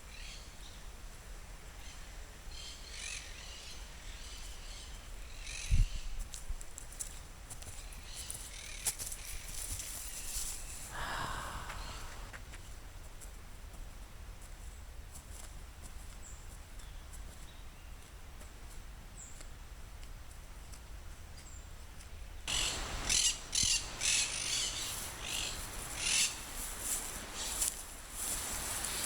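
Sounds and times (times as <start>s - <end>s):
bird chirps: 22.5s - 26.4s
rustling and crackling: 24.8s - 29.0s.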